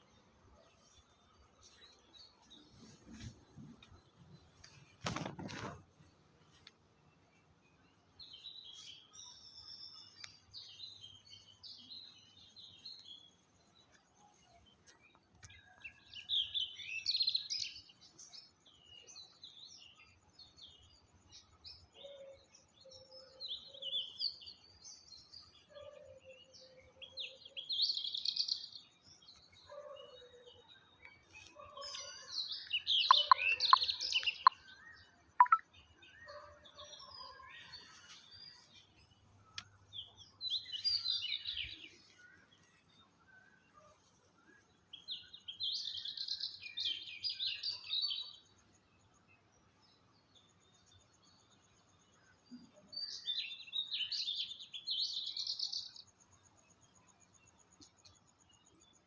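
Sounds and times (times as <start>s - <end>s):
birds chirping: 23.4s - 48.3s.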